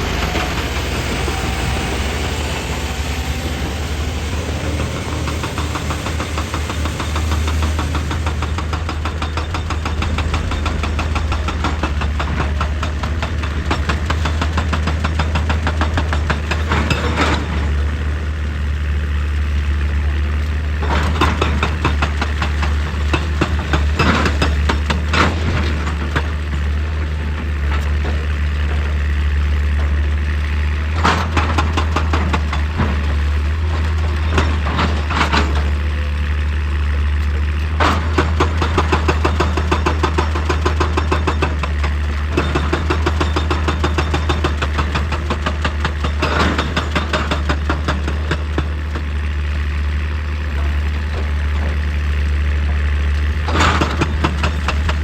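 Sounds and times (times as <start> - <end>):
excavator diesel engine humming: 0.0 - 55.0.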